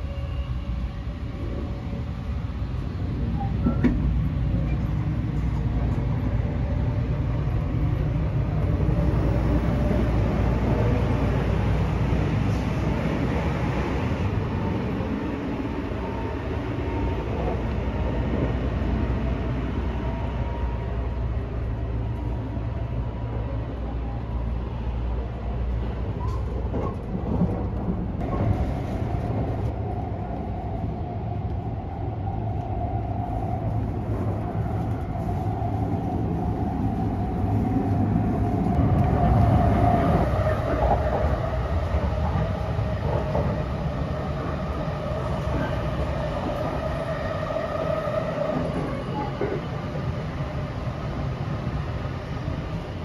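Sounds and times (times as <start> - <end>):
train wheels rumbling on rail: 0.0 - 53.0
train whine: 0.0 - 53.0.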